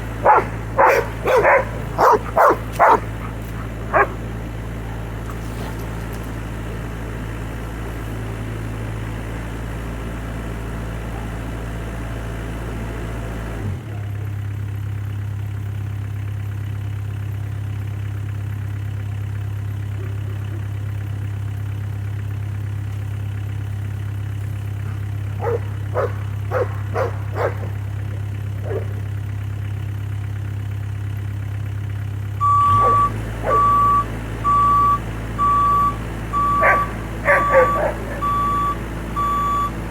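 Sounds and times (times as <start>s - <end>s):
excavator diesel engine running: 0.0s - 39.9s
dog barking: 0.1s - 5.7s, 11.0s - 11.5s, 24.8s - 29.2s, 32.6s - 33.9s, 36.3s - 38.7s
travel alarm beeping: 32.4s - 39.9s.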